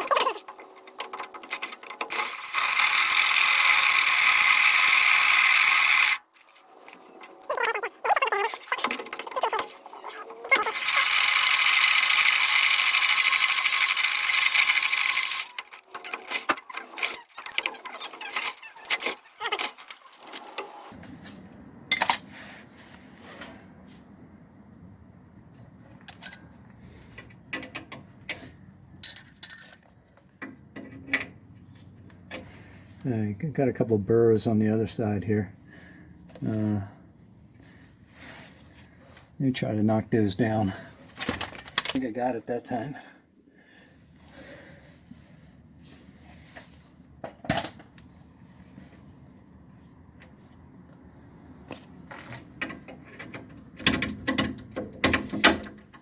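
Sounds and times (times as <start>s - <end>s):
metal tools clinking: 26.0s - 26.8s, 28.3s - 30.1s.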